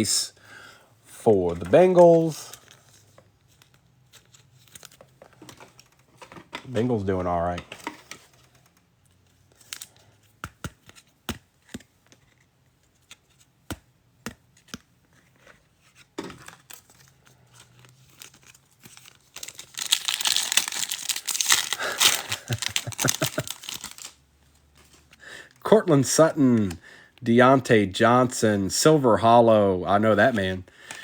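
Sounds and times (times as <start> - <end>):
foil pack ripping and crinkling: 18.0 - 24.2
trading cards clicking: 19.4 - 24.1.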